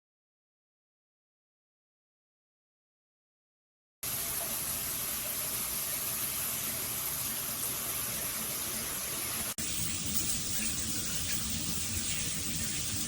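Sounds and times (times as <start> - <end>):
water spraying from shower head: 4.1 - 13.0.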